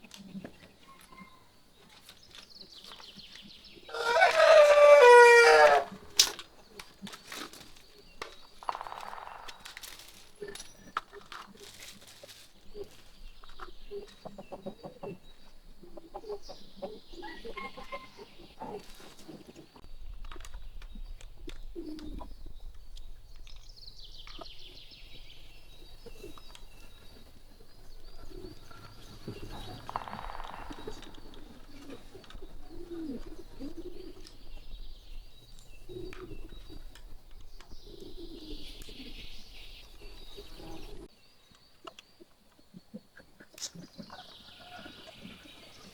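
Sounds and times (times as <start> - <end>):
small birds chirping: 0.0 - 5.0, 5.9 - 45.9
chickens clucking: 3.9 - 7.1, 10.4 - 19.8, 25.9 - 34.7, 41.8 - 45.9.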